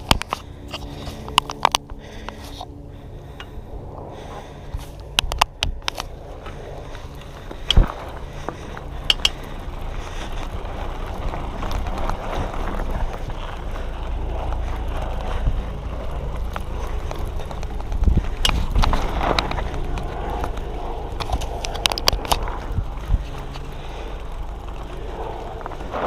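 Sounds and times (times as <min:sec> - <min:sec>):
bike tyres rolling on dirt: 0:00.0 - 0:26.0
low wind rumble: 0:00.0 - 0:26.0
sharp clicks and knocks: 0:05.1 - 0:06.1, 0:09.0 - 0:09.5.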